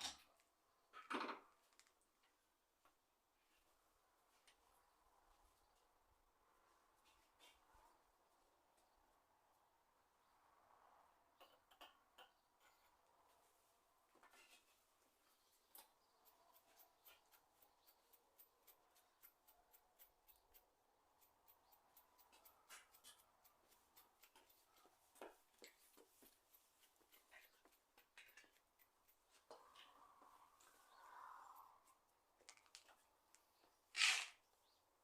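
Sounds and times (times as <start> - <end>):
faint clicks from handling small parts: 32.4 - 34.3.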